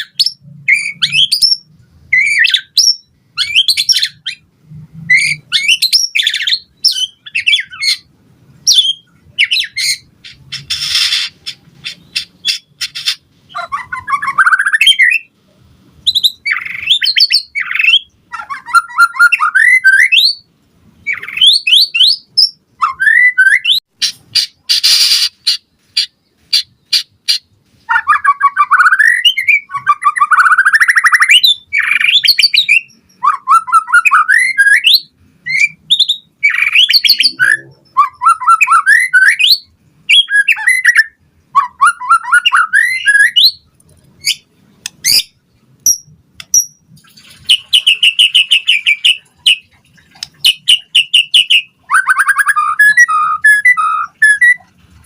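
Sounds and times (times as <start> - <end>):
songbird singing trills: 0.0 - 4.5, 16.0 - 49.7, 50.3 - 54.7.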